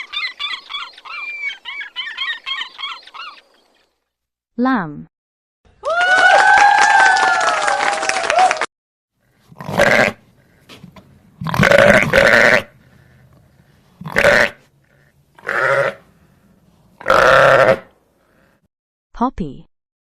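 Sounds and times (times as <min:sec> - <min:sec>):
lamb bleating: 0:09.6 - 0:10.2, 0:11.4 - 0:12.7, 0:14.0 - 0:14.6, 0:15.4 - 0:16.0, 0:17.0 - 0:17.9.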